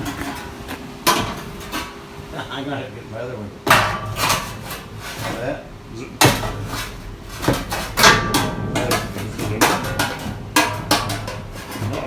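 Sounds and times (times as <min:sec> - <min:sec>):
hard objects knocking and clanking: 0:00.0 - 0:02.0, 0:06.2 - 0:12.0
steady low hum: 0:00.0 - 0:12.0.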